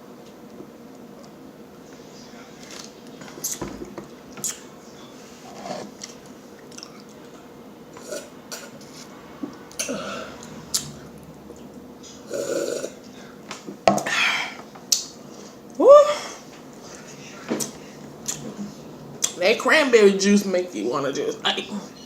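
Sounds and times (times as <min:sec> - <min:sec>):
burp: 0:12.3 - 0:13.0.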